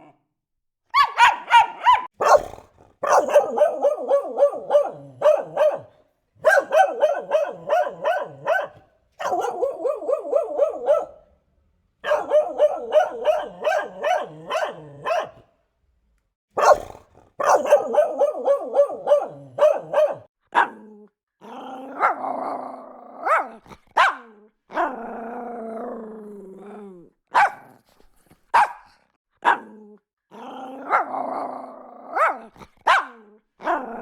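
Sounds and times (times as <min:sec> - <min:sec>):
dog barking: 0:00.9 - 0:11.3, 0:12.0 - 0:15.5, 0:16.6 - 0:20.8, 0:21.9 - 0:22.2, 0:23.2 - 0:24.9, 0:27.3 - 0:27.8, 0:28.5 - 0:29.8, 0:30.8 - 0:31.1, 0:32.1 - 0:34.0.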